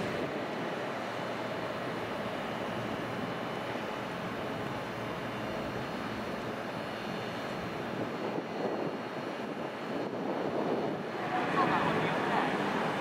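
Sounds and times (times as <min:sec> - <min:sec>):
train rumble: 0:08.2 - 0:13.0.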